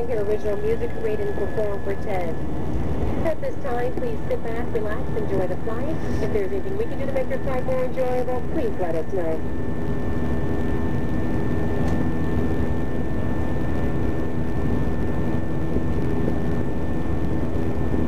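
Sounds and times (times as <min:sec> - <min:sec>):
faint steady high tone: 0:00.0 - 0:02.4
airliner cabin engine rumble: 0:00.0 - 0:18.0
low hum: 0:00.0 - 0:18.0.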